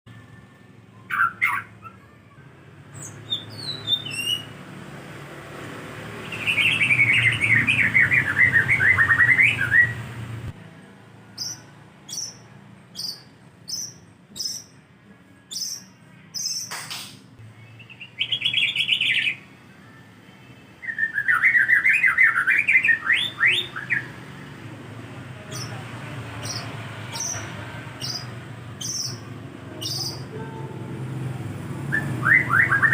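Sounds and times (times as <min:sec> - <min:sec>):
sharp click: 0:16.6 - 0:17.3.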